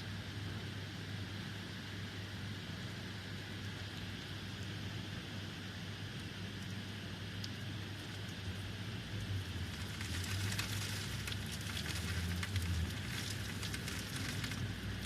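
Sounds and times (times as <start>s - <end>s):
low steady rumble: 0.0s - 15.0s
heavy rain pattering: 9.5s - 15.0s.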